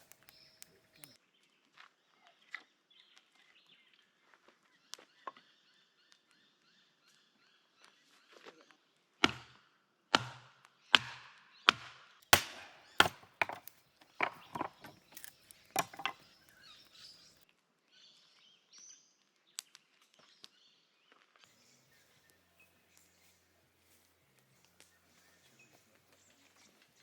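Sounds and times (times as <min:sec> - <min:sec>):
firewood being chopped: 0:00.0 - 0:01.2, 0:09.2 - 0:09.6, 0:10.2 - 0:17.3.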